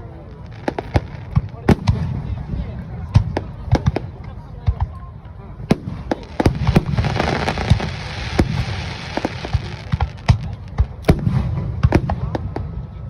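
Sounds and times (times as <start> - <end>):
fireworks bursting: 0.0 - 4.9, 5.6 - 12.8
crackling hiss: 0.2 - 1.9, 5.7 - 11.2.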